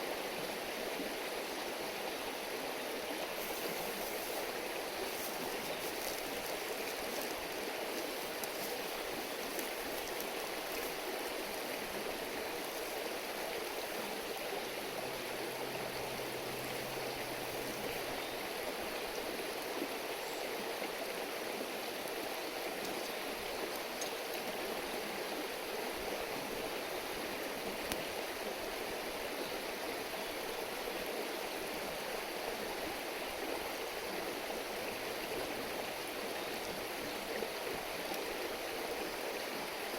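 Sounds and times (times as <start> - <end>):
stream burbling: 0.0 - 39.9.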